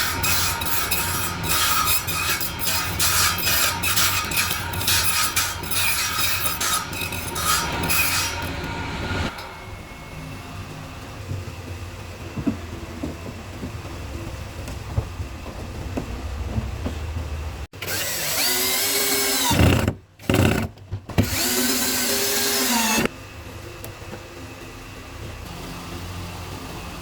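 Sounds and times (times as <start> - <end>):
low rumble: 8.4 - 17.7
power tool motor whine: 17.8 - 23.1.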